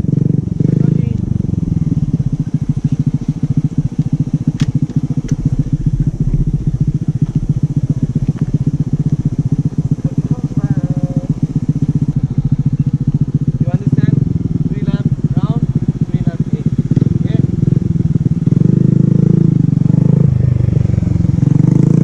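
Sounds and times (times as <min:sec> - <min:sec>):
small motorcycle engine idling: 0:00.0 - 0:22.0.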